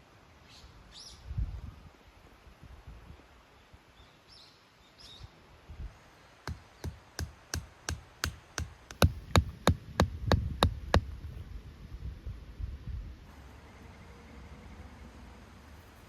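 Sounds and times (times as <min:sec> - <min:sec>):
tent peg being hammered: 0:06.5 - 0:11.2.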